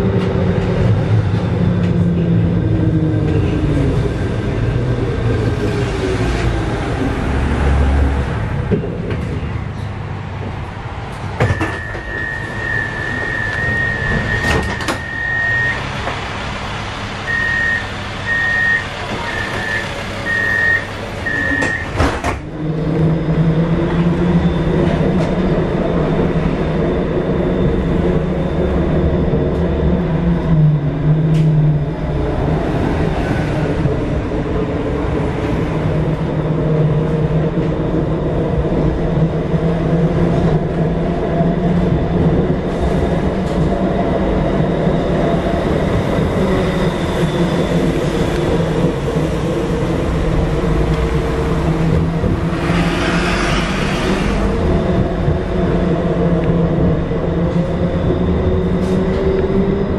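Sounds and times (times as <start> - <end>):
tram motors humming: 0.0 - 59.9
tram rolling noise: 0.0 - 59.9
short beeps: 11.5 - 15.8, 17.3 - 21.9
steady high beep: 17.3 - 21.8.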